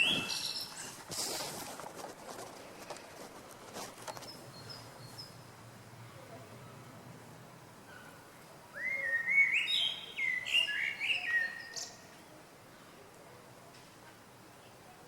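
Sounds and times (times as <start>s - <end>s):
songbird whistling: 0.0s - 0.7s, 8.8s - 12.0s.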